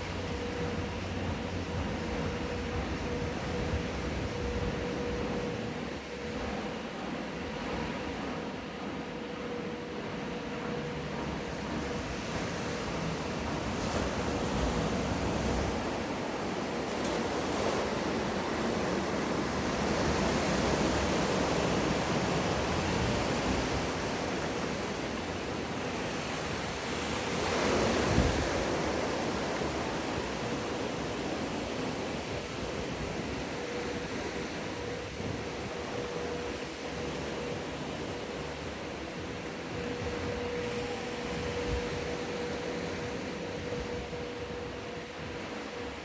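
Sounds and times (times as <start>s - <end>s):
wave breaking and rushing water: 11.6s - 46.0s.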